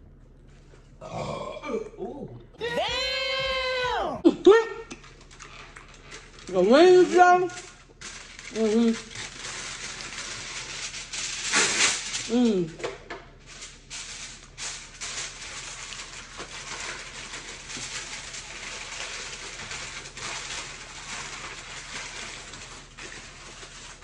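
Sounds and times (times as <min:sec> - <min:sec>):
person chewing food: 0:00.2 - 0:03.6
person drinking from plastic cup: 0:00.8 - 0:03.6.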